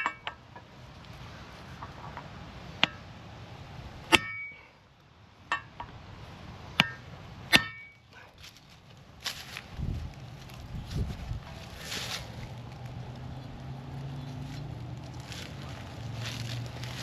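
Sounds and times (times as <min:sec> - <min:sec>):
metal on metal clangs: 0:00.0 - 0:00.7, 0:04.1 - 0:04.7, 0:05.5 - 0:05.9, 0:06.8 - 0:08.0
steady low rumble: 0:00.0 - 0:17.0.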